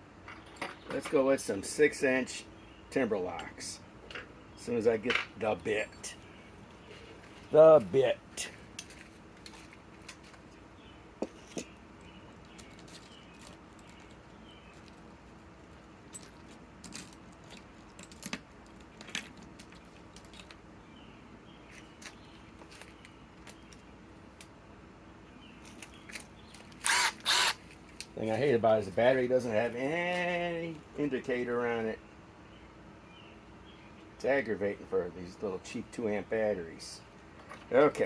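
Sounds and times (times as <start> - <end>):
low steady hum: 0.0 - 38.0
small metal parts clinking: 0.2 - 1.3, 12.4 - 20.6, 37.3 - 38.0.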